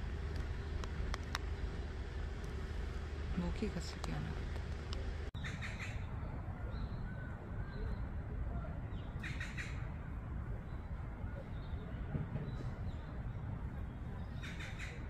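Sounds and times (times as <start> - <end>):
faint bird calls: 5.4 - 15.0.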